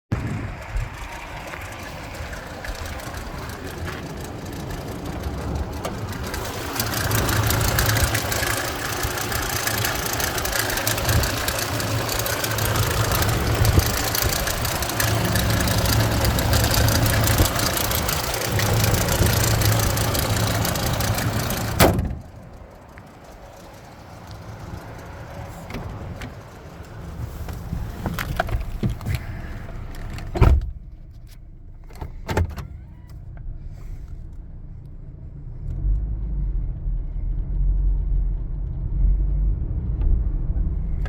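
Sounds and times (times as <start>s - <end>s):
pickup truck engine idling: 0.2s - 28.0s.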